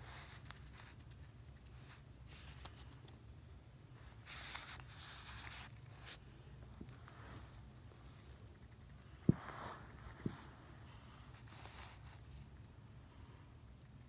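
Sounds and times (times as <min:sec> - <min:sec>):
hamster nibbling: 0:00.0 - 0:03.3, 0:04.1 - 0:10.5.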